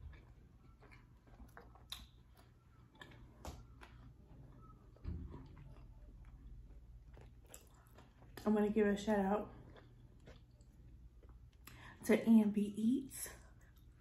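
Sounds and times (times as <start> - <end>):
chewing with mouth closed: 0.0 - 8.6, 9.4 - 11.9.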